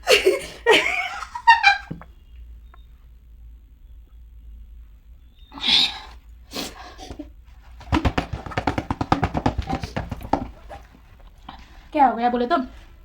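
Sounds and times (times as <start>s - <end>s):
stifled laughter: 0.0s - 2.0s.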